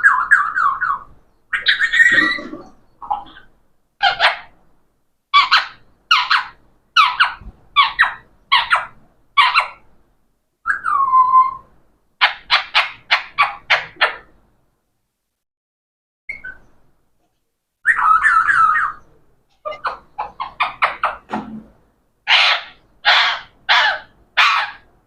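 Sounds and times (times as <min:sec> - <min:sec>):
parrot squawking: 0:00.0 - 0:04.5, 0:05.4 - 0:09.8, 0:12.2 - 0:14.3, 0:17.8 - 0:21.3, 0:22.3 - 0:24.9.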